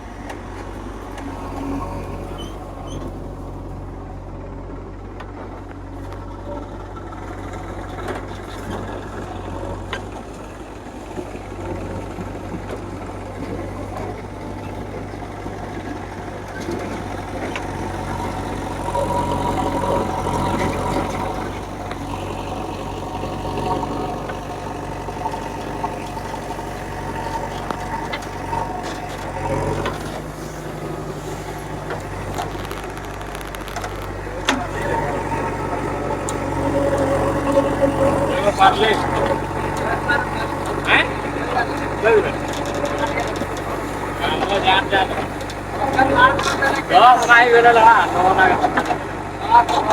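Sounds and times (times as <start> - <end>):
diesel engines running: 0.0 - 49.9
whine: 15.7 - 49.9.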